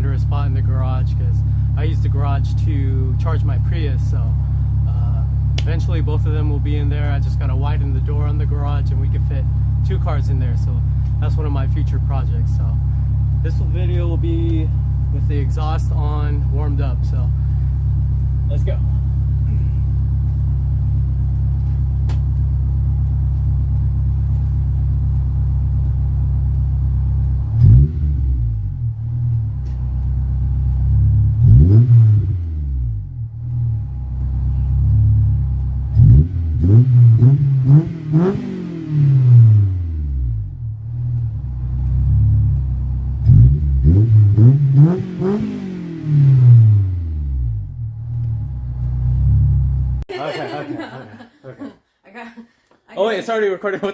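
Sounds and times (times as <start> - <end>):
car engine idling and revving: 0.0 - 50.1.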